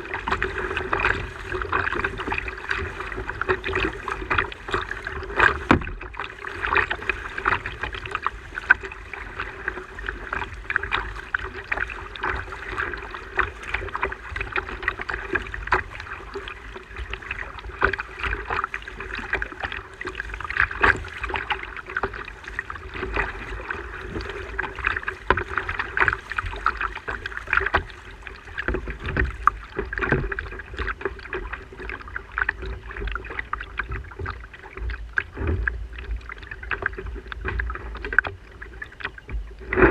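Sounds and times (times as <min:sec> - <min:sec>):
water slapping against plastic hull: 0:00.0 - 0:39.9
small irregular knocks: 0:05.3 - 0:06.1.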